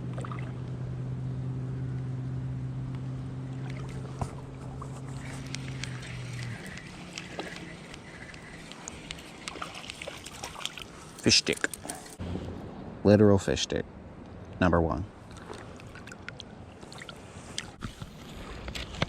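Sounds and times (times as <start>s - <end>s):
boat motor humming: 0.0s - 12.4s
light clicks and ticks: 5.2s - 12.2s.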